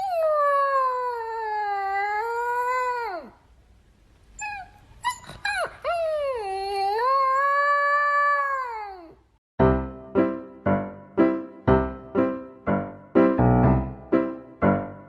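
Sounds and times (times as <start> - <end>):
dog yipping and howling: 0.0 - 3.3, 4.4 - 8.9.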